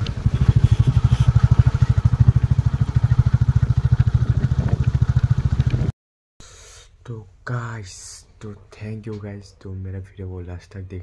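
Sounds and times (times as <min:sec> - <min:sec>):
motorcycle engine running: 0:00.0 - 0:05.9.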